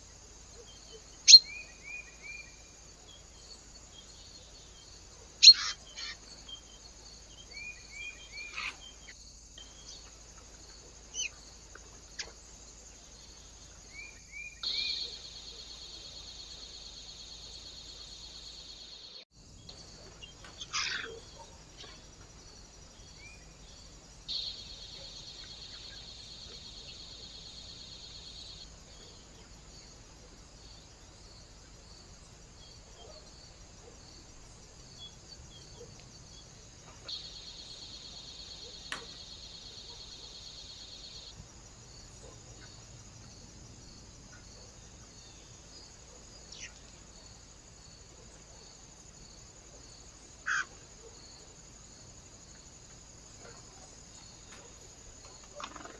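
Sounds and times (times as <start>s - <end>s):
short bird calls: 5.4s - 6.2s.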